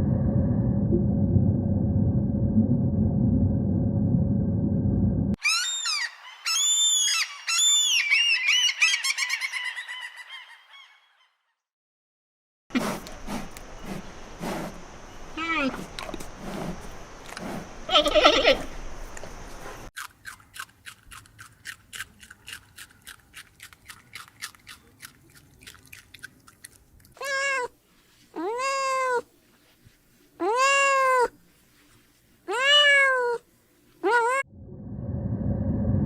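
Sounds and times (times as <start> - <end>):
animal crying: 5.4 - 11.0, 17.9 - 18.7, 27.2 - 27.7, 30.4 - 31.3, 34.0 - 34.4.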